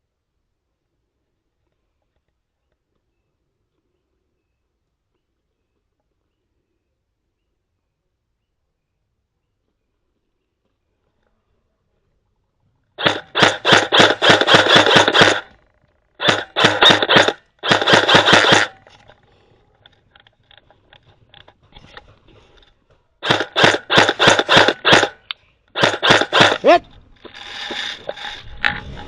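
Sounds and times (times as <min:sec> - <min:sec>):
airsoft guns firing bursts: 0:13.0 - 0:15.6, 0:16.2 - 0:19.1, 0:23.2 - 0:25.2, 0:25.8 - 0:26.8
faint scattered shots: 0:13.0 - 0:15.6, 0:16.2 - 0:19.1, 0:23.2 - 0:25.2, 0:25.8 - 0:26.9.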